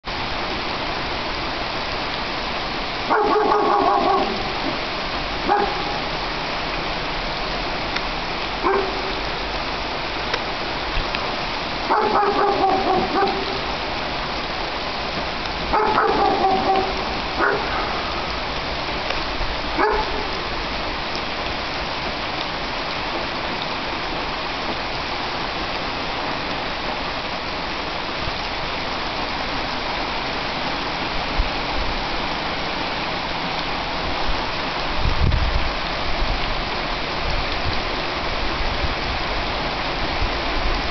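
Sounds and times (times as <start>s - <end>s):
heavy rain: 0.0s - 40.9s
dog barking: 3.1s - 4.8s, 5.4s - 6.0s, 8.6s - 9.2s, 11.9s - 13.7s, 15.7s - 18.2s, 19.8s - 20.4s
drawn-out calls: 15.7s - 18.4s.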